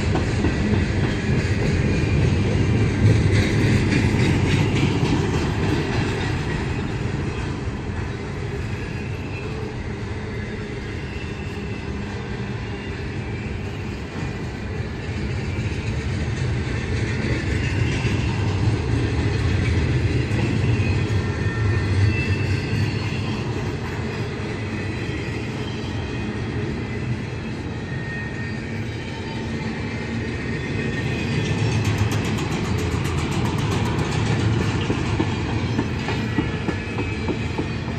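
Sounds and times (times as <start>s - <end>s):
train wheels rumbling on rail: 0.0s - 37.9s
high wheel squeals: 5.8s - 16.2s, 19.8s - 32.6s, 33.2s - 37.9s.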